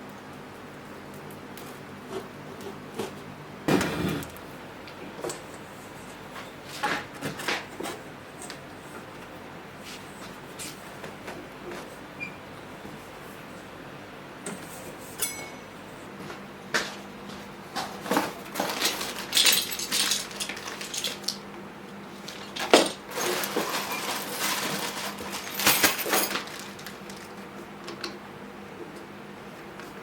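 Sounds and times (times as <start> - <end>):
hard objects clinking and knocking: 18.6 - 21.4.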